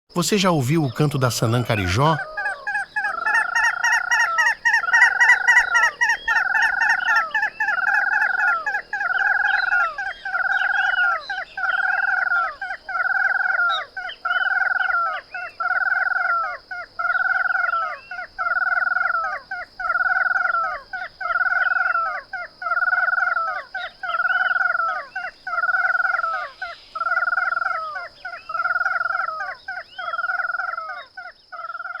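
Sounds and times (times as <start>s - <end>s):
bird calling buzzy notes: 0.1s - 12.5s.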